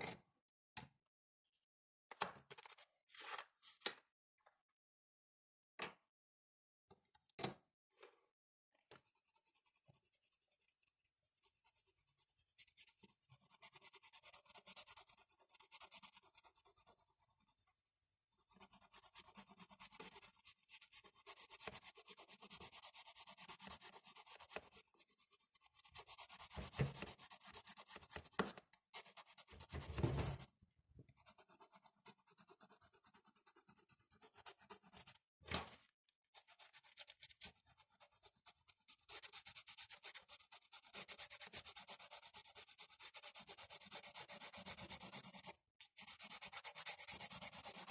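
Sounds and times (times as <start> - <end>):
pencil scratching on paper: 9.0 - 30.5, 31.2 - 35.3, 36.3 - 47.9.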